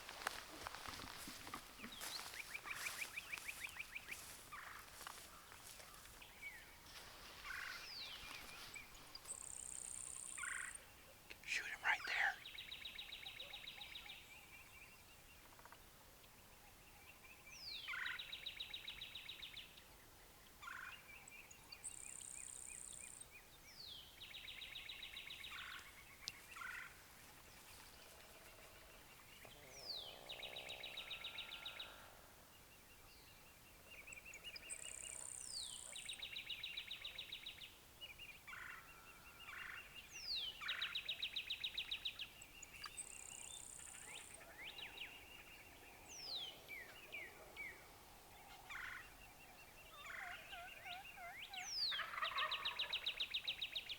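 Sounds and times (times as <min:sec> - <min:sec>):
wild turkey gobbling: 0:50.0 - 0:52.8.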